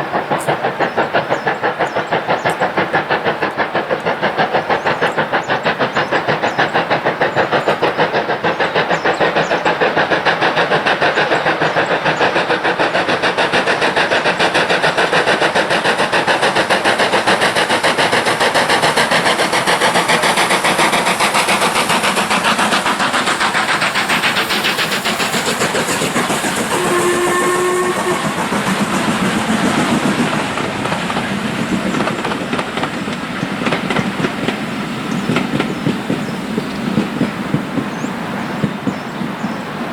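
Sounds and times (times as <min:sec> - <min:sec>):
steam locomotive exhaust beats: 0:00.0 - 0:39.9
steam whistle blast: 0:26.6 - 0:28.5.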